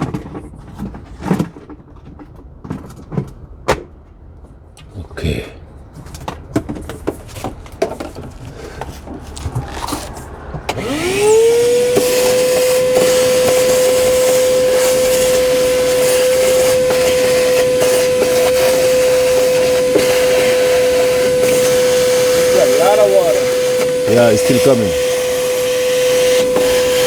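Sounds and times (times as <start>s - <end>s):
wet dry vacuum running: 9.6s - 27.0s.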